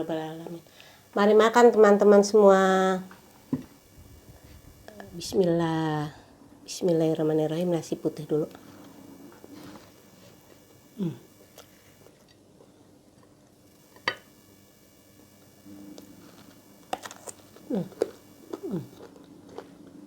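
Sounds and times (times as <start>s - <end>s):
chewing rice: 16.0s - 20.0s.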